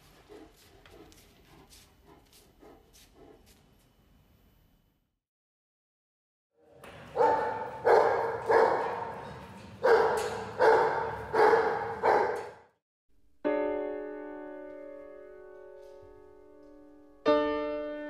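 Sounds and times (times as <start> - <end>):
dog barking: 7.1 - 12.7.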